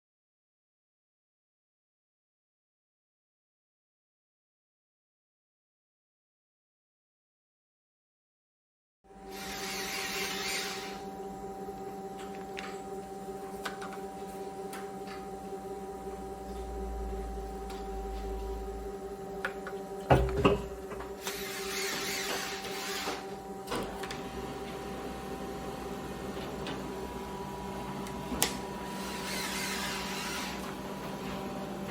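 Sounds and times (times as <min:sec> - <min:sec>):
press electric hum: 0:09.1 - 0:31.9.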